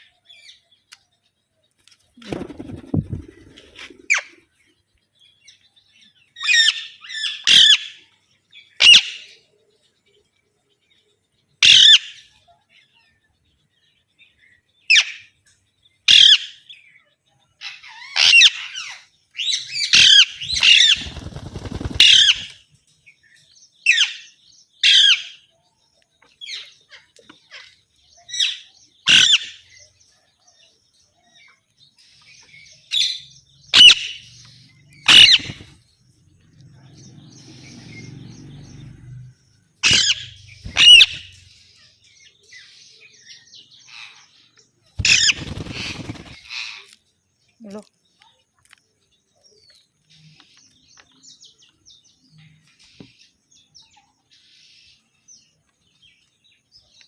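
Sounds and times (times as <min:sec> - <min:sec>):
parrots squawking: 0:17.9 - 0:19.0, 0:28.4 - 0:29.6, 0:33.7 - 0:34.2, 0:35.0 - 0:35.8, 0:39.8 - 0:41.4, 0:45.0 - 0:46.8.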